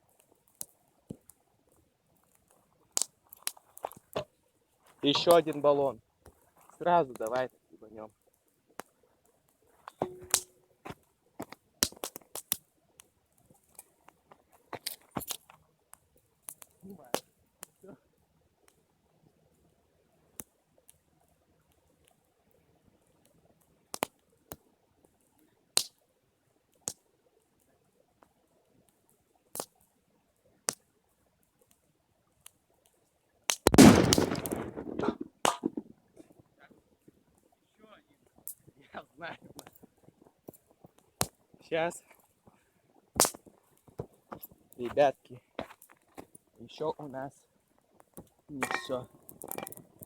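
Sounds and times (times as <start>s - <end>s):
campfire popping: 0.0s - 18.0s, 19.5s - 26.1s, 26.7s - 29.9s, 30.5s - 50.0s
low steady tone: 10.0s - 10.6s
canister bursting with loud bang: 33.7s - 35.8s.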